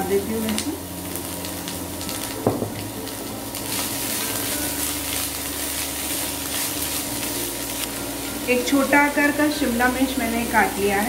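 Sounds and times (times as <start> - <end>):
onions sizzling in oil: 0.0 - 11.0
single knock: 2.4 - 2.8.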